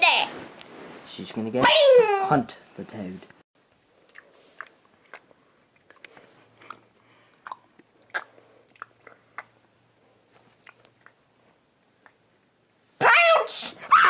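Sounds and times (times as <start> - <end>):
cat chewing with clicks and crunches: 3.8 - 9.4.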